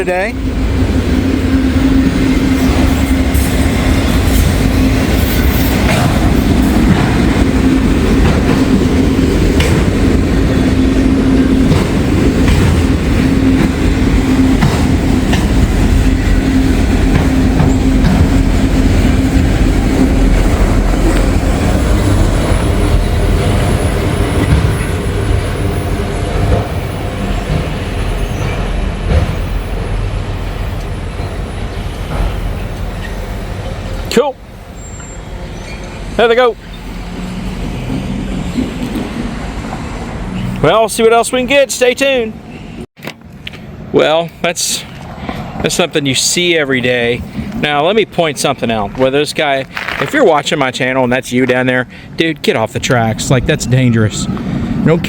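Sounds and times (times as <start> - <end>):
train wheels clattering over rail joints: 0.7 - 33.8, 48.4 - 50.4.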